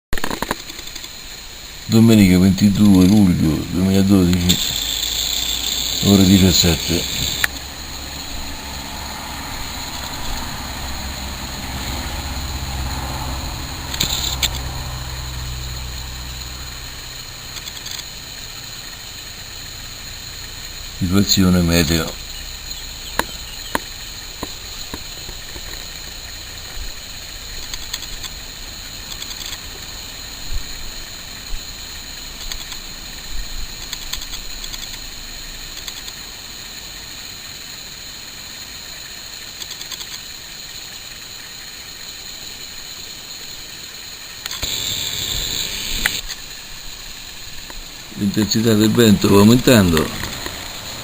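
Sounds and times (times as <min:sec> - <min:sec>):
sharp click: 0:00.2 - 0:01.1, 0:07.0 - 0:07.6, 0:13.9 - 0:14.6, 0:29.1 - 0:29.6, 0:44.4 - 0:46.4
sharp ticks: 0:00.2 - 0:01.4, 0:04.2 - 0:08.3, 0:13.8 - 0:14.8, 0:16.4 - 0:19.3, 0:22.0 - 0:26.3, 0:27.4 - 0:29.9, 0:31.4 - 0:36.3, 0:39.4 - 0:40.4, 0:44.4 - 0:46.4, 0:49.4 - 0:51.0
gusty storm wind hiss: 0:00.4 - 0:51.0.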